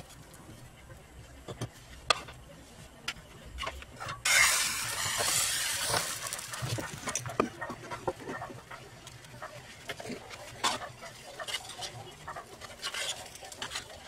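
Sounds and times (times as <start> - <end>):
omelette sizzling in frying pan: 4.2 - 7.0.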